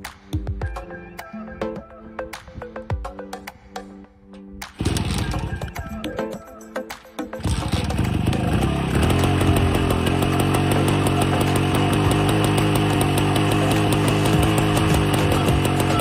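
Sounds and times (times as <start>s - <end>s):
motorcycle two-stroke engine idling: 7.4s - 16.0s.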